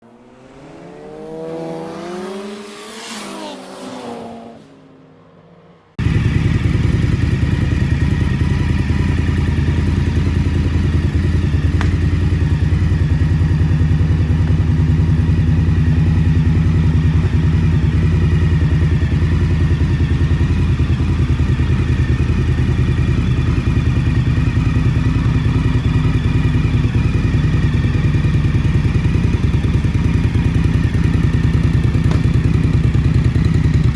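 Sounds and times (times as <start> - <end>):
motorcycle engine idling: 6.0 - 33.9.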